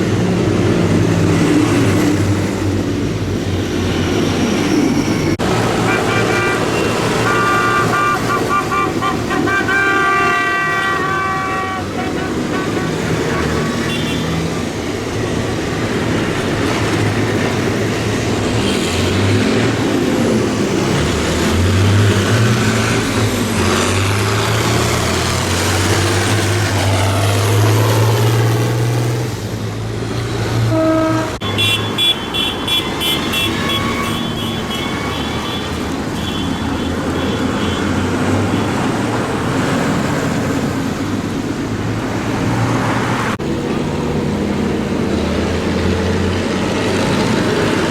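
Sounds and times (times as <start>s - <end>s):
tractor engines passing: 0.0s - 47.9s
horn toot: 5.8s - 14.4s, 30.7s - 38.7s.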